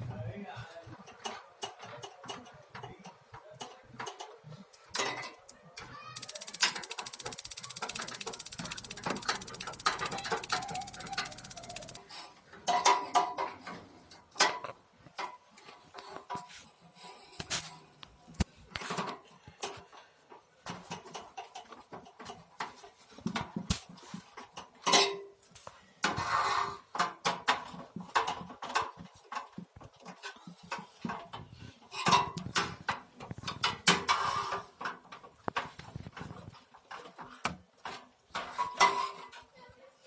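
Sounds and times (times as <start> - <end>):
small metal parts clicking and clinking: 4.8 - 12.0.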